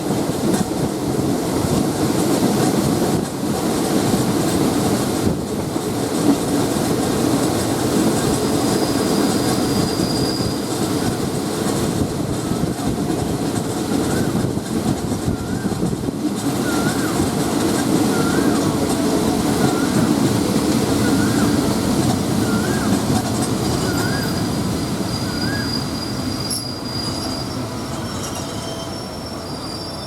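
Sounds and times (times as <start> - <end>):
train wheels rumbling on track: 0.0 - 30.0
wheels squealing: 8.5 - 11.2, 18.0 - 20.2, 20.9 - 30.0.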